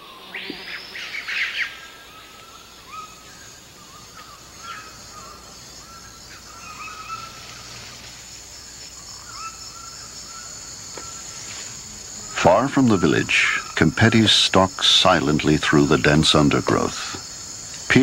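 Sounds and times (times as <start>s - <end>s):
high insect hum: 0.0s - 18.0s.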